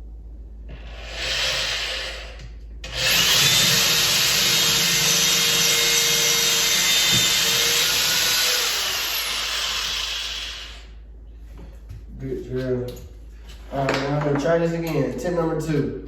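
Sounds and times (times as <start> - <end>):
power drill boring into wood: 0.8 - 10.9.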